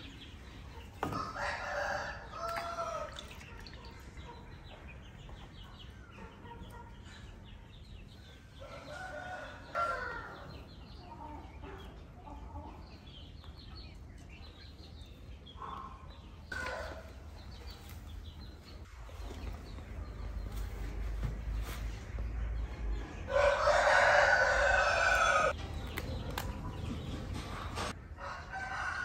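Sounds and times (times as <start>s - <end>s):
small birds chirping: 0.0s - 28.0s
rooster crowing: 1.1s - 3.1s, 23.3s - 25.6s, 28.2s - 29.0s.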